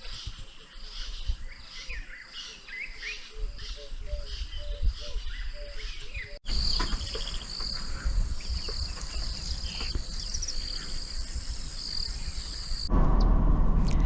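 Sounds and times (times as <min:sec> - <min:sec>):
insects buzzing: 0:06.4 - 0:12.9
low rumble: 0:06.5 - 0:14.0.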